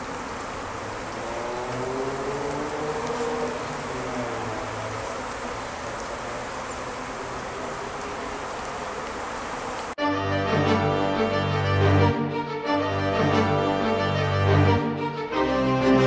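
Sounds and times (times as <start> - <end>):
music: 10.0 - 16.0.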